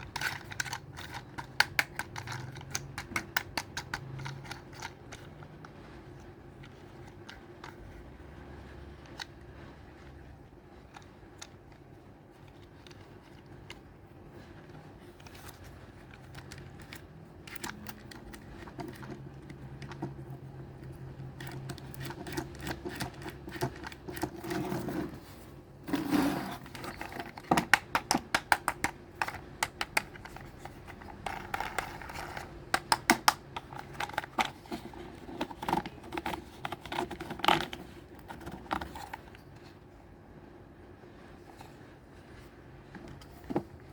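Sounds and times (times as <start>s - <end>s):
toy trucks clicking and rattling: 0.0s - 5.4s.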